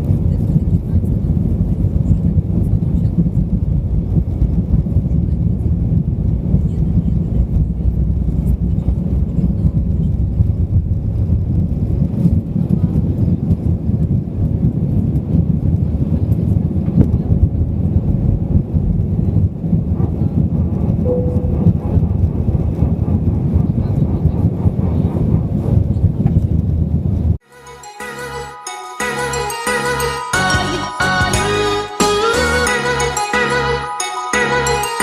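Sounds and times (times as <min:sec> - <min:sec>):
airplane cabin engine rumble: 0:00.0 - 0:27.4
short tone: 0:21.1 - 0:21.9.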